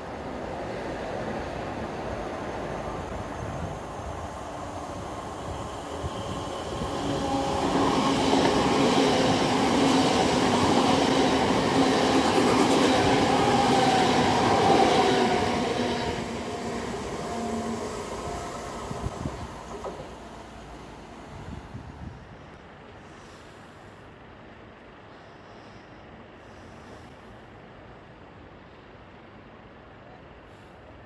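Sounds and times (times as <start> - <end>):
train running on rails: 0.0 - 23.4.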